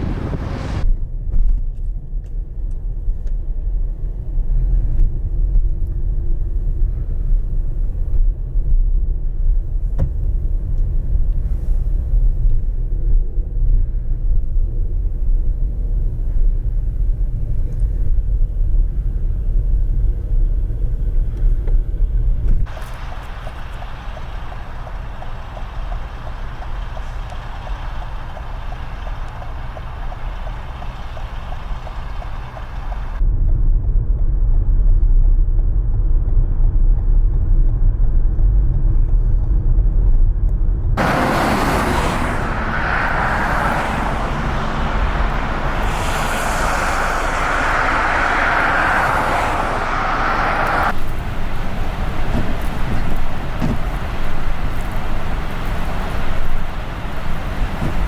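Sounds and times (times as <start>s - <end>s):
gusts buffeting microphone: 0.0s - 0.9s, 41.0s - 58.0s
strong wind noise: 0.0s - 1.0s, 41.0s - 58.0s.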